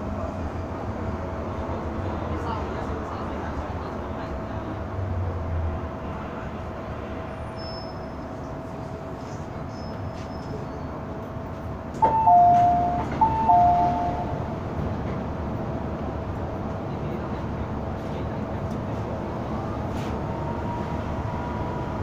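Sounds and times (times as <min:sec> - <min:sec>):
train car rumble: 0:00.0 - 0:22.0
two-note electronic chime: 0:12.1 - 0:14.3.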